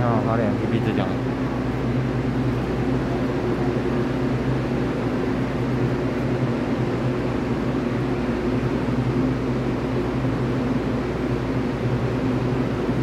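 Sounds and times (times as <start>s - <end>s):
standing electric train humming: 0.0s - 13.0s.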